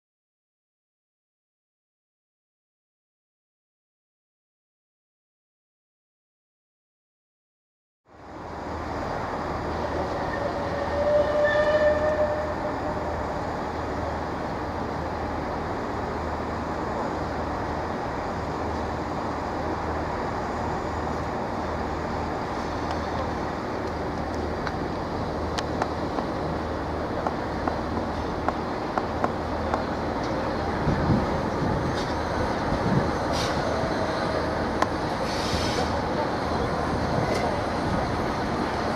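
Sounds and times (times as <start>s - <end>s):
diesel locomotive running: 8.1s - 38.9s.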